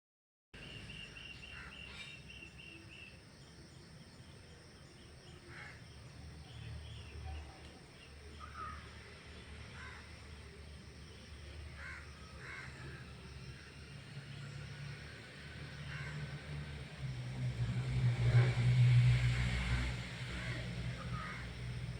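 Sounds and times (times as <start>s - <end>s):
birds calling: 0.6s - 9.1s.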